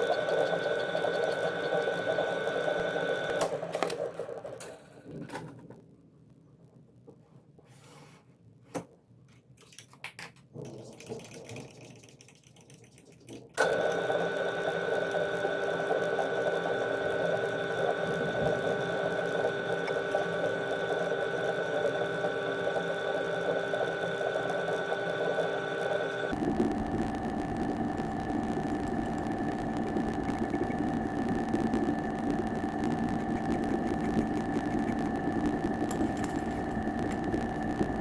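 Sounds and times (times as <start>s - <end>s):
small motor humming: 0.0s - 4.0s, 13.6s - 38.0s.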